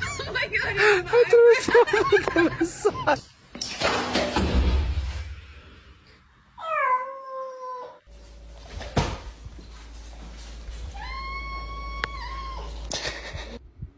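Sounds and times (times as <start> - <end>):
cat meowing: 10.9 - 12.8.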